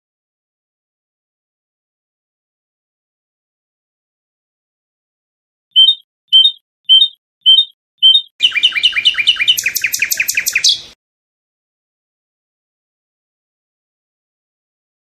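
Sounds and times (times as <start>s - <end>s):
nightingale singing: 5.8s - 11.0s.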